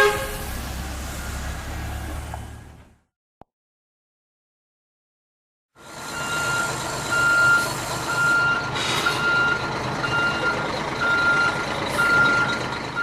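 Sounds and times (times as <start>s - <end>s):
truck back-up alarm beeping: 1.1s - 1.7s, 5.9s - 13.0s
truck engine running: 5.8s - 13.0s.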